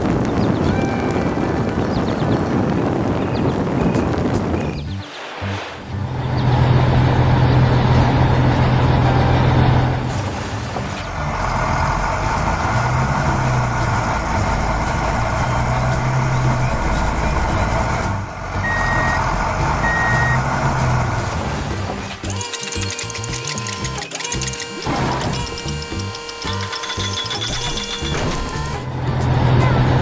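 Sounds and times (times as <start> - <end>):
diesel engine droning: 5.8 - 30.0
short high beeps: 18.6 - 20.4, 22.3 - 27.9.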